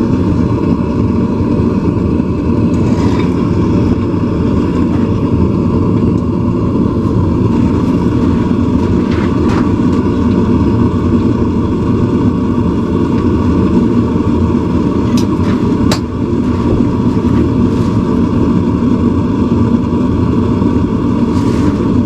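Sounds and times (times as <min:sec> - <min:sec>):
forge rushing: 0:02.6 - 0:10.6, 0:14.6 - 0:18.6.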